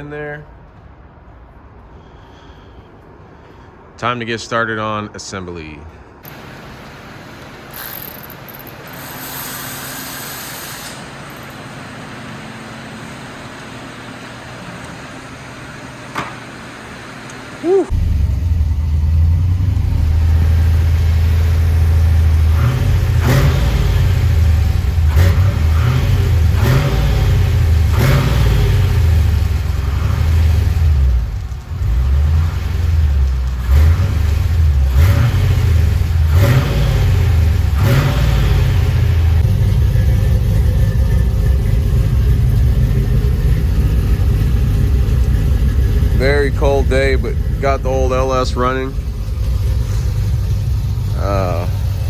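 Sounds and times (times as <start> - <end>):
engine revving and idling: 17.5 - 52.0.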